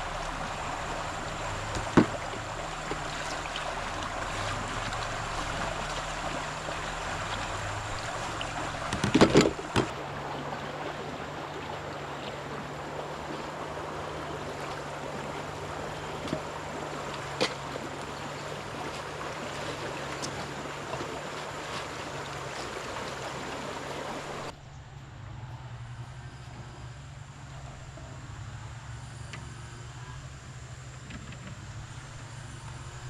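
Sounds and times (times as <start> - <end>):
flowing water rushing: 0.0 - 24.6, 30.4 - 33.0
faint low hum: 0.0 - 33.0.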